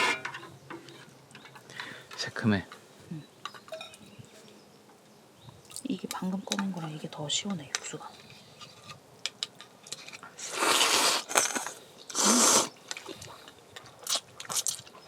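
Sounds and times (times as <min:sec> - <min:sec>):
person slurping broth: 0:10.4 - 0:12.7.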